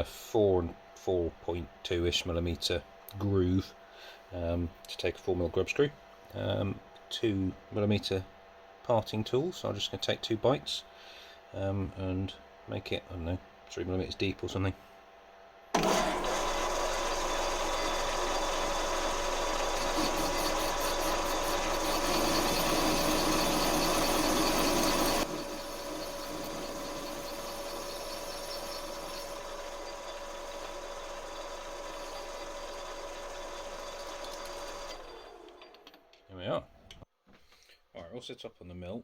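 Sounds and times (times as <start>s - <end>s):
lathe whine: 15.8s - 36.0s
tool cutting metal: 15.8s - 36.0s.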